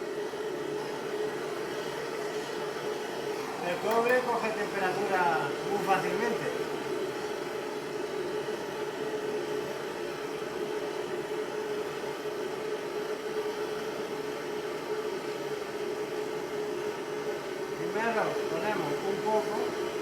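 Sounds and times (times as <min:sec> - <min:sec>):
blowtorch hissing: 0:17.7 - 0:20.0.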